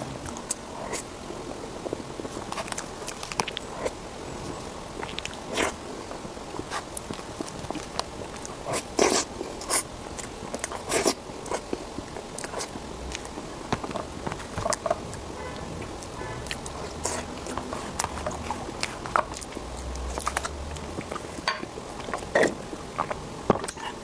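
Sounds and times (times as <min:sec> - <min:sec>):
person biting and chewing food: 0:02.2 - 0:24.0
lip smacks: 0:14.3 - 0:21.4.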